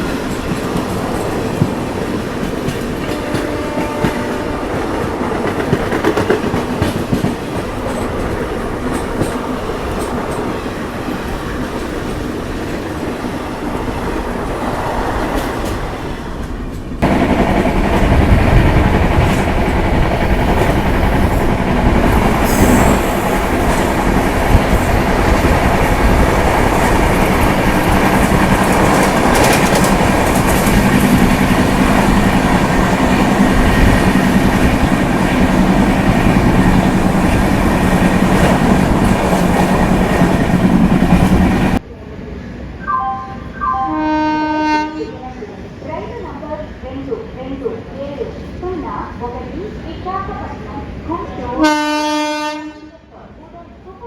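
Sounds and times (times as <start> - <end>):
train clattering over rail joints: 0.0 - 14.1, 15.1 - 41.8
deep train rumble: 0.0 - 52.8.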